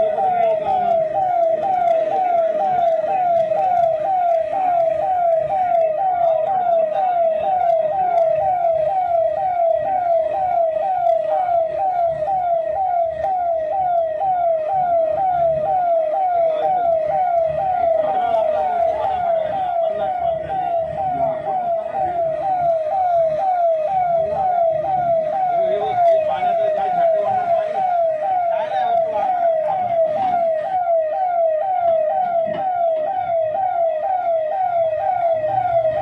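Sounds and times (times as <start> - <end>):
siren sweeping: 0.0 - 36.0.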